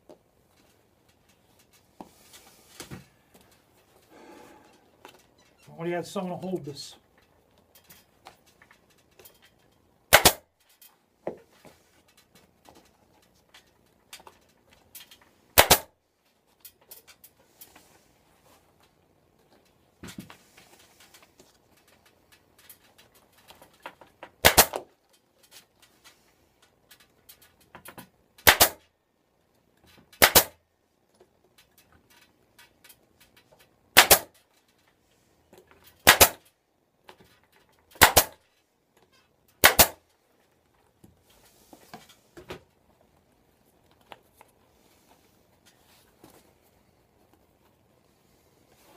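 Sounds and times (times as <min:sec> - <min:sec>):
staple gun snapping: 0:39.6 - 0:40.0.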